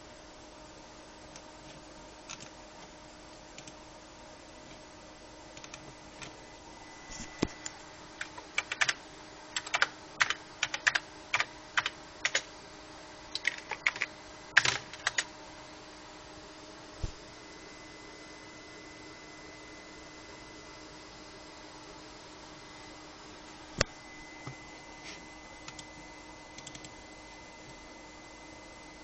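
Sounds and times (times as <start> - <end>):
electrical hum with high whine: 0.0 - 29.0.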